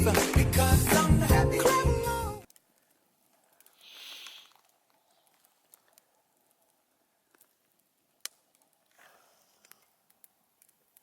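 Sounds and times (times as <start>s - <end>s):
faint clicks: 2.4s - 11.0s
soft hiss: 2.5s - 11.0s.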